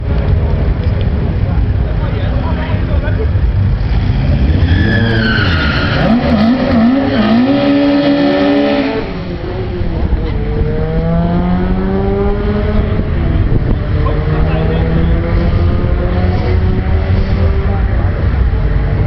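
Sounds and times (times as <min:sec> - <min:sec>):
car engine revving hard: 0:03.7 - 0:18.2.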